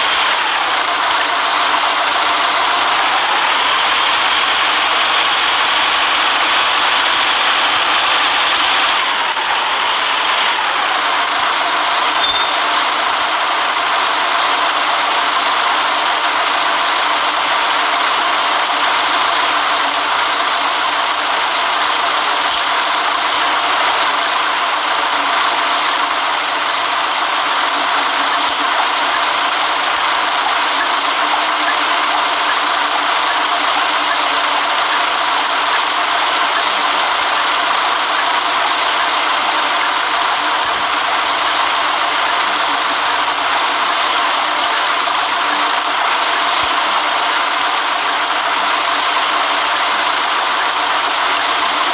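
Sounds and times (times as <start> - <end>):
road noise: 0.0 - 19.4, 40.3 - 46.7
bus engine: 0.0 - 51.9.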